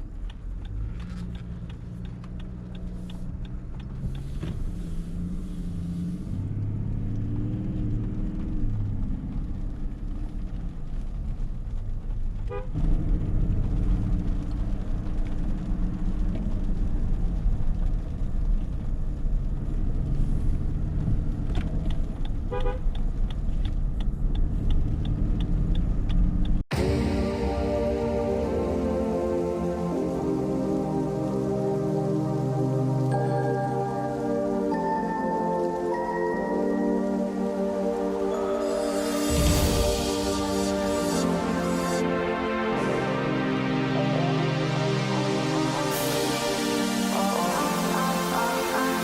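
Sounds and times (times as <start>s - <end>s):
diesel engine and road rumble: 0.0s - 34.7s
music: 26.7s - 49.0s.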